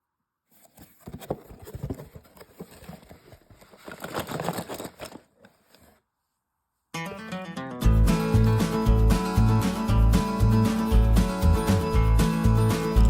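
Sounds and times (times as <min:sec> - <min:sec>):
cardboard boxes rustling: 0:00.5 - 0:06.1.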